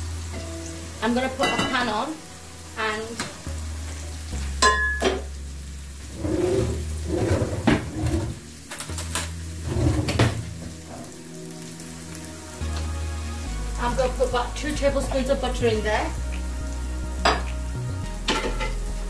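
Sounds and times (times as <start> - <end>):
vegetables sizzling in oil: 0.0 - 19.0
cookware clinking: 1.4 - 2.0, 4.6 - 5.3.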